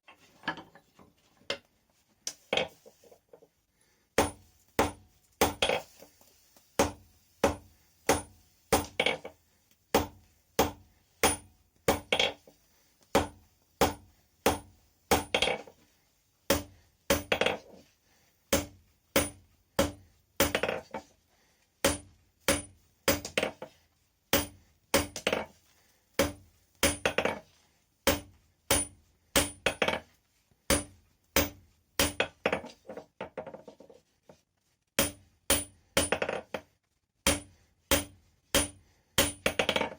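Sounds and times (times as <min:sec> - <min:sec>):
hammer striking steel on anvil: 0:04.2 - 0:05.8, 0:06.8 - 0:09.1, 0:09.9 - 0:12.2, 0:13.2 - 0:15.6, 0:16.5 - 0:17.5, 0:18.5 - 0:20.7, 0:21.8 - 0:23.5, 0:24.3 - 0:25.4, 0:26.2 - 0:27.4, 0:28.0 - 0:30.0, 0:30.7 - 0:32.3, 0:35.0 - 0:36.3, 0:37.2 - 0:39.8.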